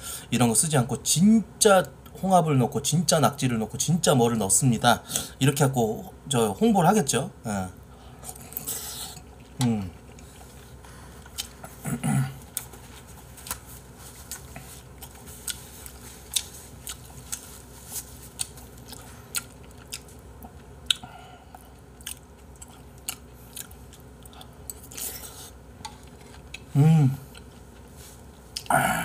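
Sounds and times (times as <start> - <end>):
wet chewing and mouth clicks: 11.2 - 11.8, 12.4 - 21.0, 21.6 - 25.1.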